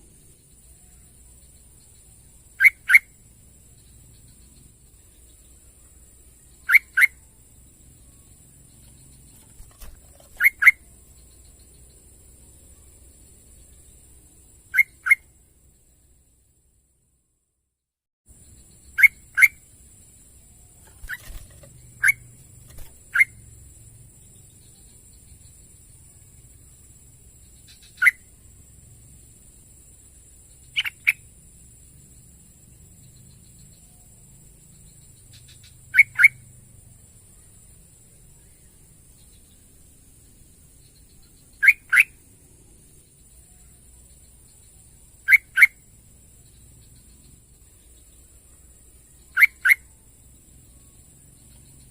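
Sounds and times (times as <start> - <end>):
bulbul calling: 2.6 - 3.1, 6.6 - 7.2, 8.9 - 10.8, 20.8 - 23.4, 30.7 - 31.2, 35.3 - 36.4, 45.3 - 45.8, 49.4 - 49.8.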